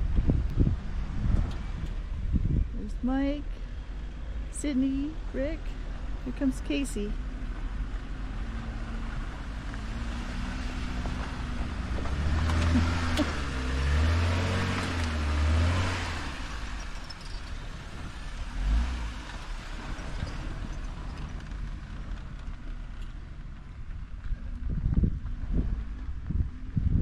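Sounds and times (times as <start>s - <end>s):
off-road vehicle engine revving: 3.2s - 23.1s.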